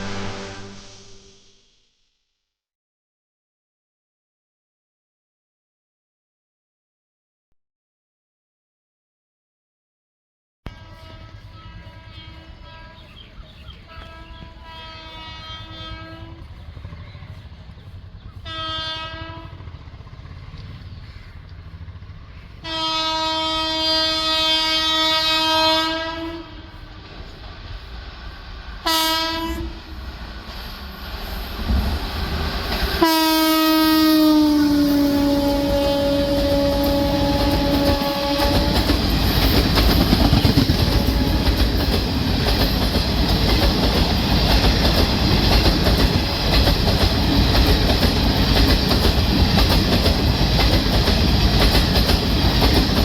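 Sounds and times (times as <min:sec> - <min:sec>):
locomotive horn blasts: 0:00.0 - 0:01.5, 0:10.7 - 0:16.6, 0:18.4 - 0:19.8, 0:22.6 - 0:27.0, 0:28.8 - 0:30.0, 0:33.0 - 0:39.0, 0:40.0 - 0:41.7
train rumbling on track: 0:00.0 - 0:01.5, 0:10.7 - 0:53.0.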